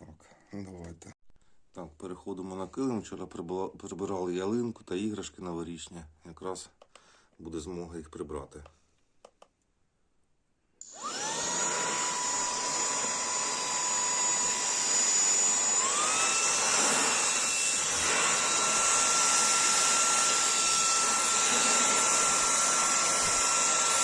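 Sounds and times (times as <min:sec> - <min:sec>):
car vacuum cleaner motor whine: 0:10.8 - 0:24.0.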